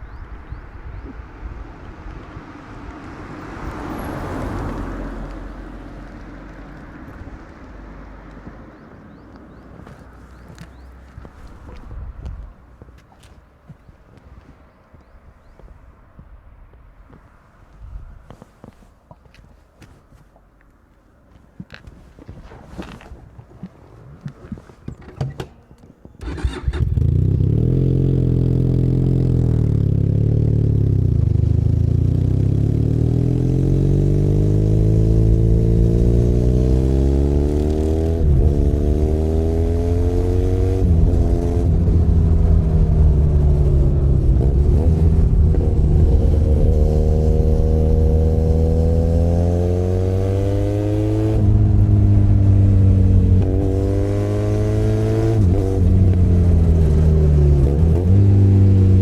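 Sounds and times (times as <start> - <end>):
motorcycle engine revving: 26.2 - 59.0.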